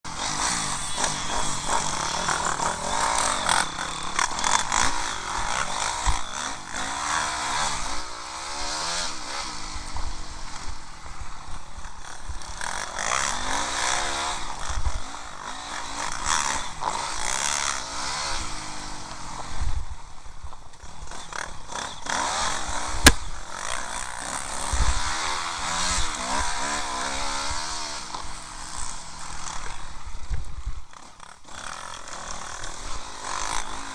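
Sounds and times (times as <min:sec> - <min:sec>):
motocross engine revving: 0:00.1 - 0:19.6, 0:20.8 - 0:30.1
wind noise on microphone: 0:19.4 - 0:21.1, 0:24.6 - 0:26.6, 0:29.8 - 0:31.0.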